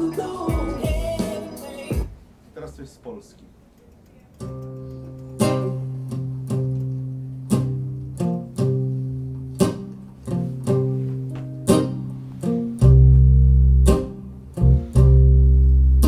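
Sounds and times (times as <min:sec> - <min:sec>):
plucked string instrument: 0:07.5 - 0:16.0.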